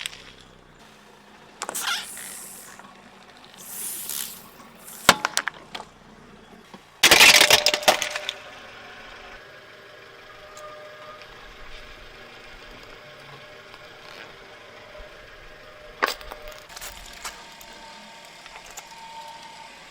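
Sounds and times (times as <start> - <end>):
brittle objects cracking under tyre: 0.0 - 0.8
faint car engine running: 0.0 - 19.9.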